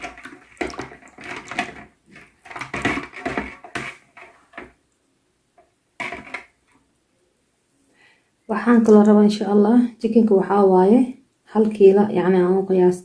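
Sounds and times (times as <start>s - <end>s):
utensil stirring and clinking bowl: 0.0s - 4.8s, 6.0s - 6.6s.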